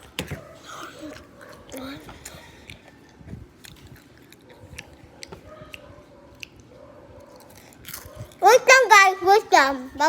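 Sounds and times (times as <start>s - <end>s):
person chewing a snack: 0.7s - 8.4s.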